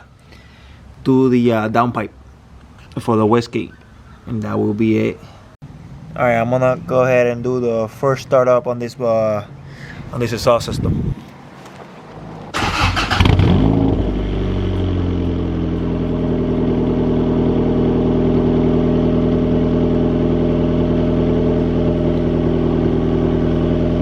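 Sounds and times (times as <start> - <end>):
car engine starting and idling: 12.4 - 24.0.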